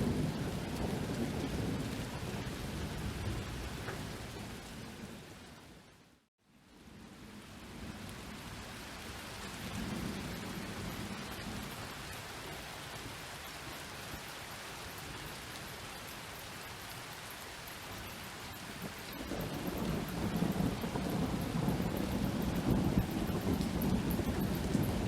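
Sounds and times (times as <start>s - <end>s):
low roll of thunder: 0.0s - 5.4s, 6.8s - 13.2s, 17.9s - 25.0s
rain hiss: 0.0s - 25.0s.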